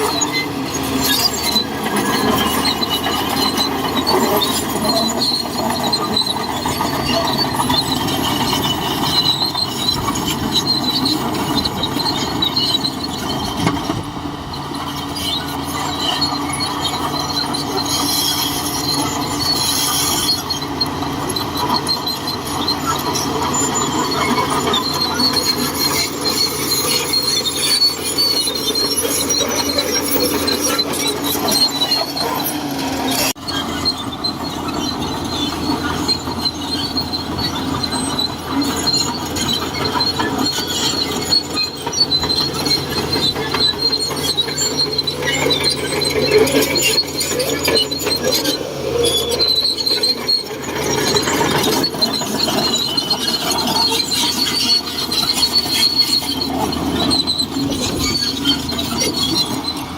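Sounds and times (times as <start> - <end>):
bulldozer diesel engine running: 0.0 - 59.9
steel tracks squealing and clattering: 0.0 - 59.9.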